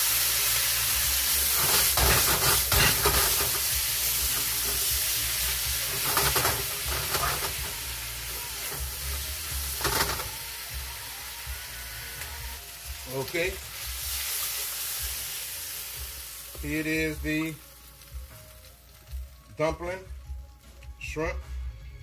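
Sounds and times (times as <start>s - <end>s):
stir-fry sizzling in a wok: 0.0s - 19.6s
spatula scraping a wok: 1.4s - 4.9s, 5.8s - 7.8s.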